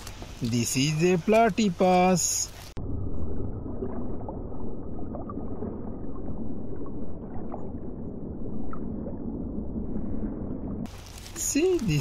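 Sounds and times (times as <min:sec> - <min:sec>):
water gurgling and splashing: 0:00.0 - 0:12.0
steady stream wash: 0:10.8 - 0:12.0.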